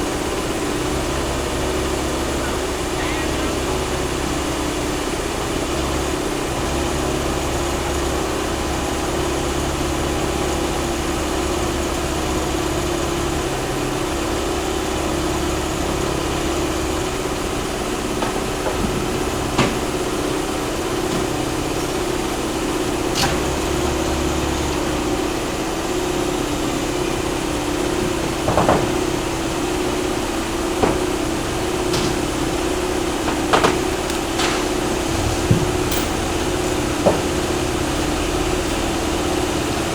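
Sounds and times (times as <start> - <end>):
excavator diesel engine running: 0.0 - 39.9
sharp knocks: 31.8 - 39.4.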